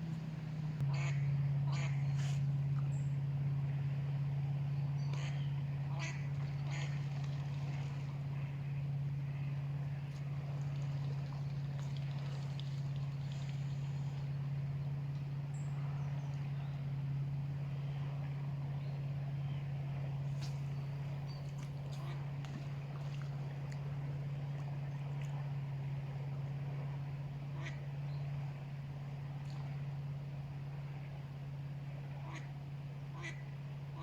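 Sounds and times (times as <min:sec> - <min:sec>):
low engine hum: 0:00.0 - 0:34.0.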